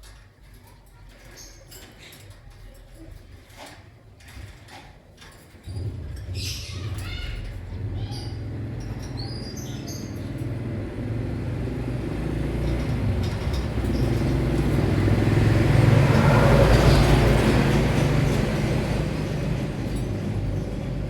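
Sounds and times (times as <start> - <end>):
motor vehicle passing: 5.7 - 21.0.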